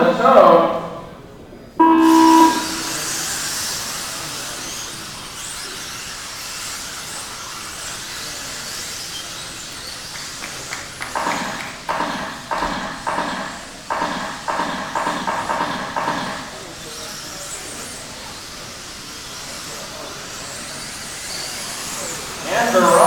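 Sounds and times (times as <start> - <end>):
short pitched beep: 1.8 - 3.3.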